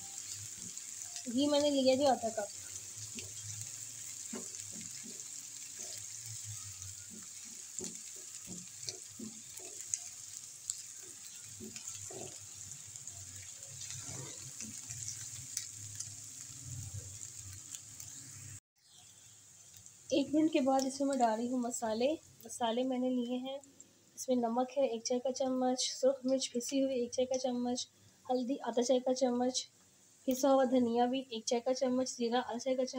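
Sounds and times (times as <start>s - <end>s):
onion sizzling in a frying pan: 0.0s - 32.9s
spatula scraping and tapping a pan: 0.2s - 1.0s, 2.5s - 16.1s.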